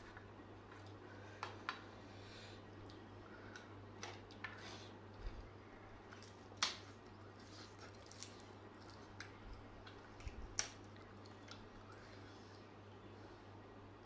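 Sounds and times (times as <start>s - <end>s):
steady low hum: 0.0s - 14.0s
crunchy chewing of leaves: 2.8s - 12.8s.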